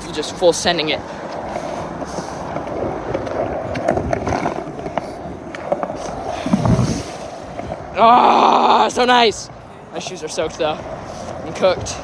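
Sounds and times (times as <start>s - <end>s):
skateboard wheels rolling on wet pavement: 0.0s - 12.0s
skateboard clicks and rattles: 1.2s - 7.9s.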